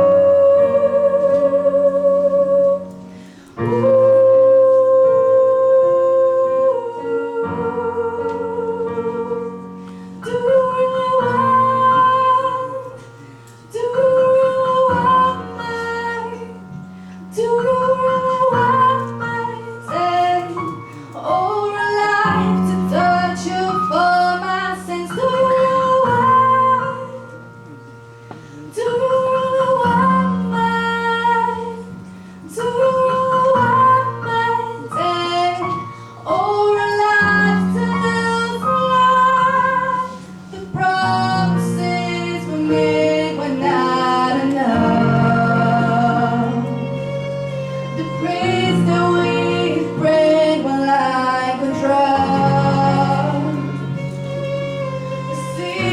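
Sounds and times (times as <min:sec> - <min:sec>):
piano: 0:00.0 - 0:55.9
violins: 0:07.6 - 0:55.9
woman singing a pop ballad: 0:10.3 - 0:13.0, 0:13.7 - 0:16.6, 0:17.3 - 0:27.4, 0:28.8 - 0:46.7, 0:48.1 - 0:53.9.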